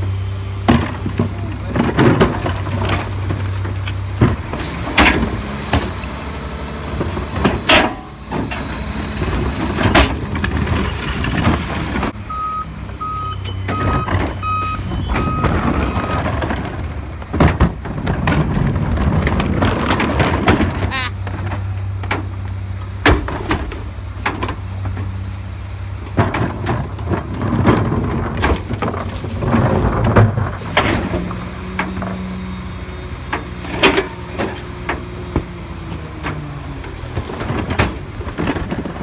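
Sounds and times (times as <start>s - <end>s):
diesel engine running: 0.0s - 39.0s
reversing alarm beeps: 12.3s - 16.3s.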